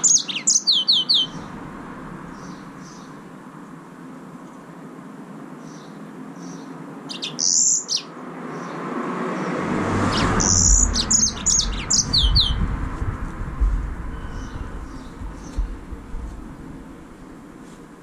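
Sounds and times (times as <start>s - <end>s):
finch chirping: 0.0s - 1.5s, 5.6s - 8.8s, 10.1s - 12.6s, 14.1s - 15.8s
low rumble: 1.2s - 3.3s, 9.6s - 17.5s.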